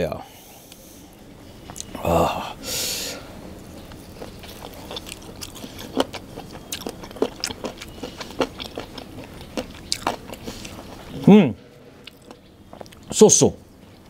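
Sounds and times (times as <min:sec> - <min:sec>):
person chewing wetly: 0:03.8 - 0:11.2, 0:12.0 - 0:13.1.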